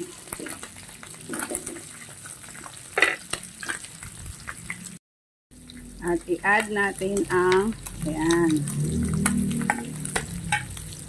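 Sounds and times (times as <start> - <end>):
wooden spatula scraping a pan: 0.0 - 3.9
food sizzling in a frying pan: 0.0 - 5.0, 5.6 - 11.0.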